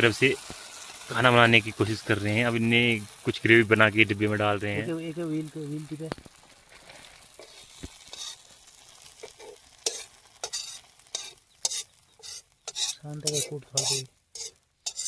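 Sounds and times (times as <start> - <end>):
gravy frying in a pan: 0.0 - 15.0
metal spoon scraping a pan: 6.8 - 15.0.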